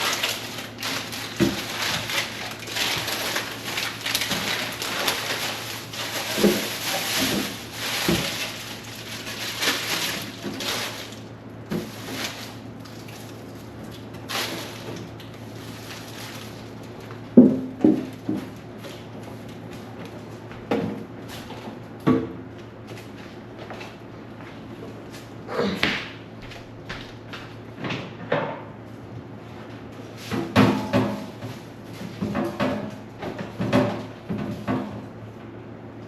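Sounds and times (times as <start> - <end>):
packaging rustling and scraping: 0.0 - 17.1
steady low hum: 0.0 - 36.0.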